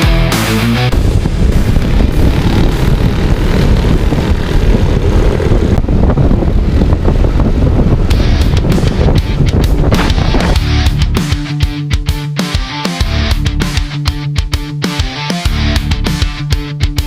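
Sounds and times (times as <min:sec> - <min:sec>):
rock music: 0:00.0 - 0:03.0, 0:08.1 - 0:17.0
motorcycle engine: 0:00.0 - 0:17.0
wind buffeting microphone: 0:00.9 - 0:11.2.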